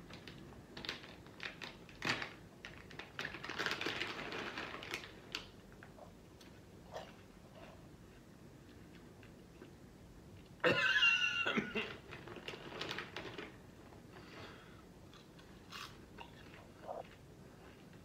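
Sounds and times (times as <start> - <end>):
person chewing crunchy popcorn: 15.1 - 18.0.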